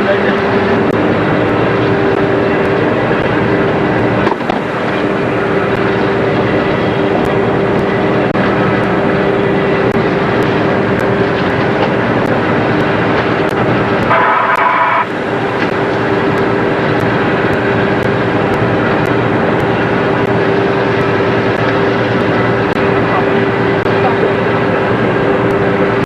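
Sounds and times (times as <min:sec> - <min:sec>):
boat engine droning: 0:00.0 - 0:26.0
water noise: 0:00.0 - 0:26.0
brief high-pitched tone: 0:14.1 - 0:15.1.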